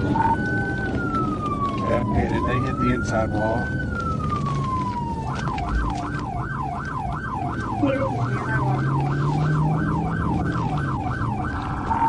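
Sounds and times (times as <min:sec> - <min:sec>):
police siren yelping: 0:00.0 - 0:12.0.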